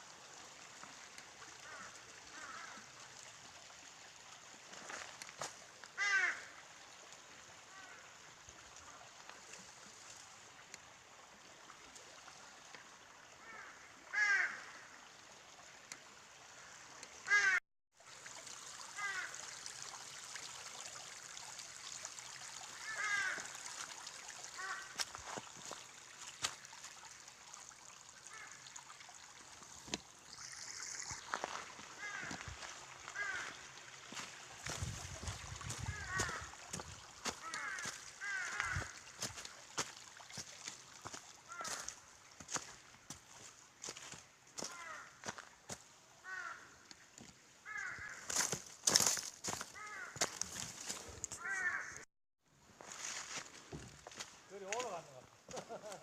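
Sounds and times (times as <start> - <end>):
stream rushing: 0.0 - 51.8.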